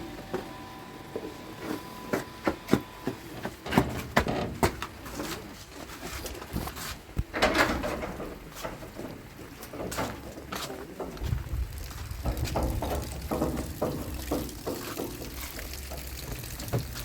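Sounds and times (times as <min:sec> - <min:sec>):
irregular clicks and knocks: 0:12.2 - 0:17.0.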